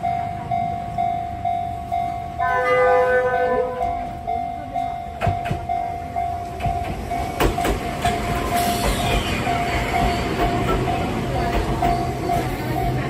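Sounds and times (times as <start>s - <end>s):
train rumble: 0.0s - 13.0s
train wheels clicking over rail joints: 5.1s - 13.0s.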